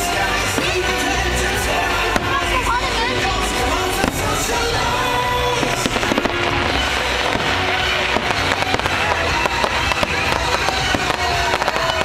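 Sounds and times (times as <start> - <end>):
fireworks bangs and crackling: 0.0 - 12.0
music soundtrack: 0.0 - 12.0.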